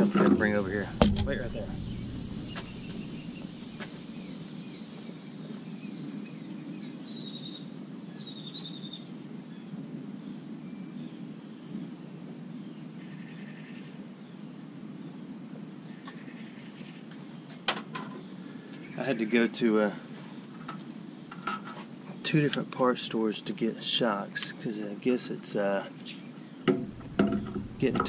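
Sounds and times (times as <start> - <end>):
high insect drone: 0.0 - 8.4, 9.2 - 24.2, 24.9 - 28.0
low background hum: 0.4 - 4.4, 26.7 - 28.0
bird chirping: 0.4 - 9.0, 25.8 - 28.0.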